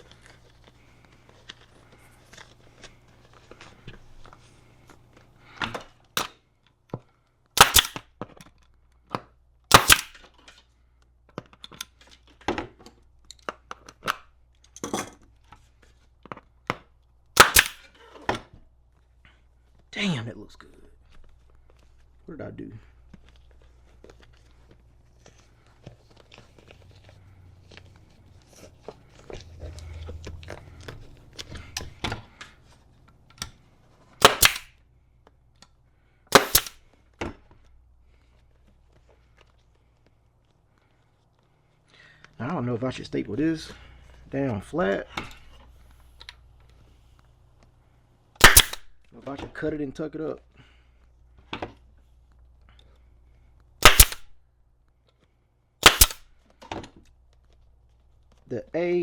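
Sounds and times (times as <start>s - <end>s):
staple gun firing: 7.6s - 8.0s, 9.7s - 10.3s, 17.4s - 17.9s, 34.2s - 34.7s, 36.3s - 36.8s, 48.4s - 48.9s, 53.8s - 54.3s, 55.8s - 56.2s.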